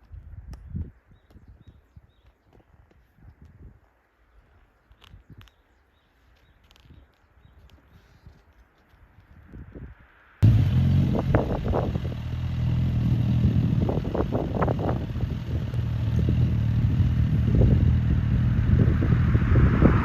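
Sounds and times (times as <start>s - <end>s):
motorcycle engine running: 10.4s - 19.6s
rush of noise: 18.0s - 20.0s.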